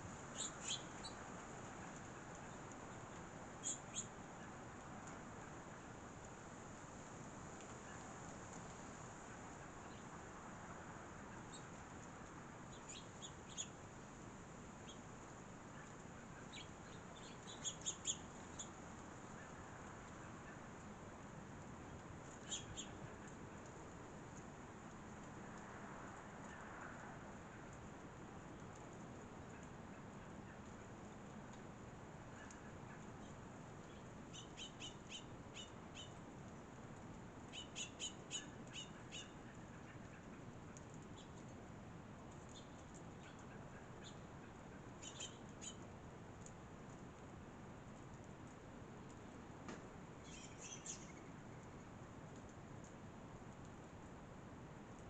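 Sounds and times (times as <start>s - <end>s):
songbirds chirping: 0.0s - 25.5s, 32.1s - 46.5s, 50.0s - 52.0s
steady background hiss: 0.0s - 55.0s
small songbird chirping: 0.3s - 1.3s, 1.9s - 4.2s, 12.7s - 13.8s, 14.8s - 15.1s, 16.4s - 18.8s, 22.3s - 23.0s, 33.2s - 36.2s, 37.5s - 39.5s, 45.0s - 45.8s, 50.2s - 51.4s.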